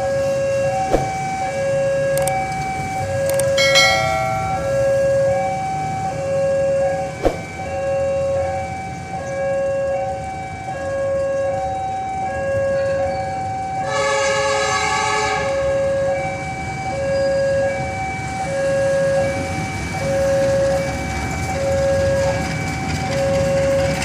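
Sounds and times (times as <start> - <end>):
sharp click: 2.2 - 2.4
level crossing alarm two-note signal: 3.4 - 7.0
locomotive horn blast: 13.8 - 15.9.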